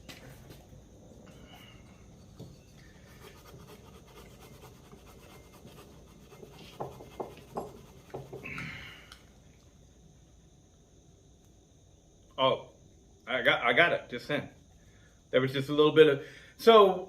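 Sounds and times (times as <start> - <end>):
scouring pad scratching metal: 3.0 - 8.4.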